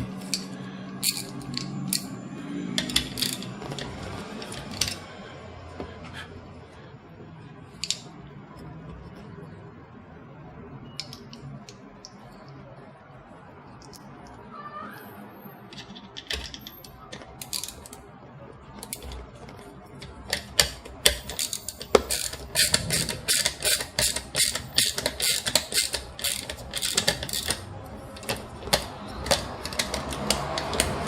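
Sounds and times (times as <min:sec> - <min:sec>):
metallic clicks of screws and screwdriver: 0:20.3 - 0:27.6, 0:28.2 - 0:31.0.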